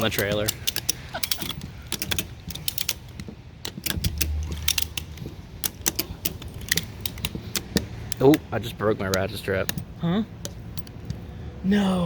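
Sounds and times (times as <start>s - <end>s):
ratchet strap clicking: 0.0s - 11.2s.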